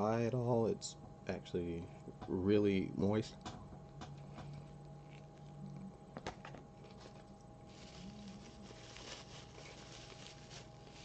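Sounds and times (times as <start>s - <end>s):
person chewing crispy food: 4.2s - 11.0s.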